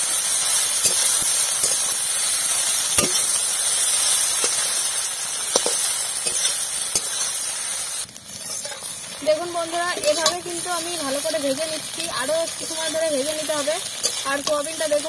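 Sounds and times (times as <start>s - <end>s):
food sizzling in hot oil: 0.0s - 15.0s
metal spatula scraping pan: 0.8s - 2.0s, 5.5s - 7.4s, 8.3s - 9.0s, 9.6s - 10.6s, 12.3s - 15.0s.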